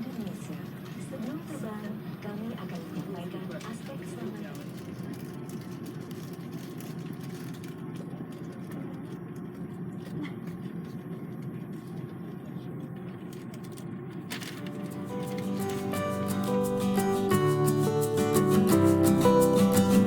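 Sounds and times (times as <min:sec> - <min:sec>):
acoustic guitar music: 0:14.6 - 0:20.0.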